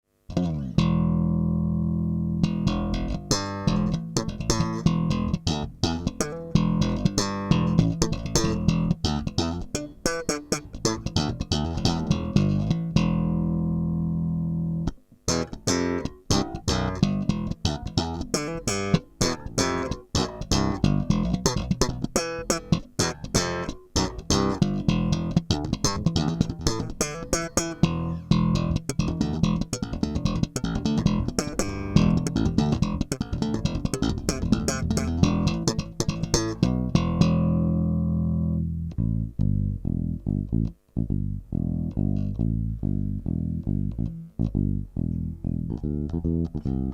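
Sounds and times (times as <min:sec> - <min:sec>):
electric bass playing: 0:00.3 - 0:46.9.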